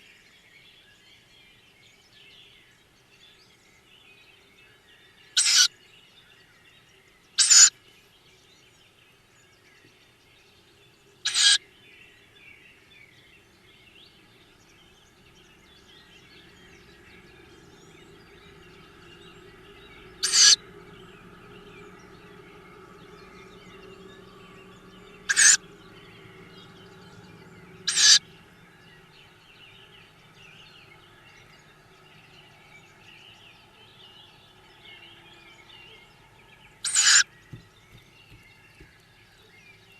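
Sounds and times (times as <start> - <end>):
owl chicks begging calls: 5.4 - 5.7, 7.4 - 7.7, 11.2 - 11.6, 13.4 - 39.1
faint low hum: 7.8 - 39.9.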